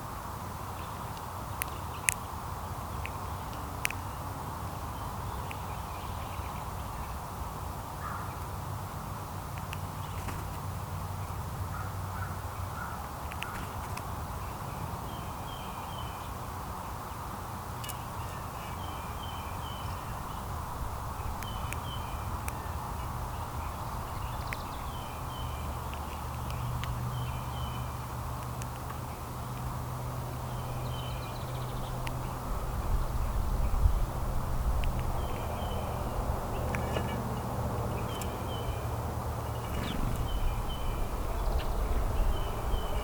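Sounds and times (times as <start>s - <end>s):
small birds chirping: 0.7s - 7.2s, 9.5s - 43.0s
steady low rumble: 18.8s - 28.4s, 29.1s - 43.0s.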